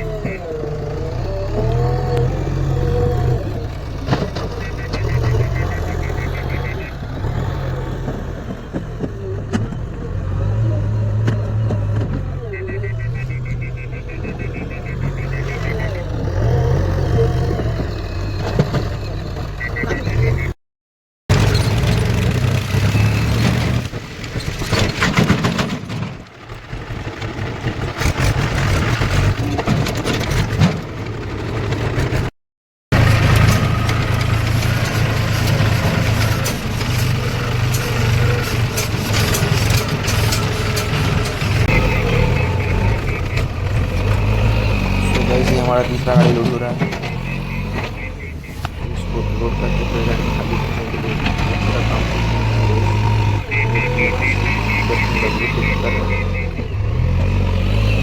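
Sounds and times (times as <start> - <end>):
diesel engine running: 0.0 - 20.5, 21.3 - 32.3, 32.9 - 58.0
knocks and clatter: 3.6 - 12.4, 21.3 - 32.3, 32.9 - 48.9
rapid electronic beeps: 4.3 - 7.6, 12.4 - 17.4, 19.6 - 20.6, 41.6 - 44.3, 45.0 - 48.6, 49.4 - 56.8.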